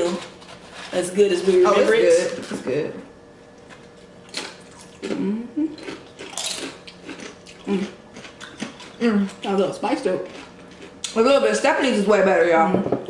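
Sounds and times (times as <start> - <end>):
chips crunched and chewed: 5.8 - 9.6, 10.2 - 11.2.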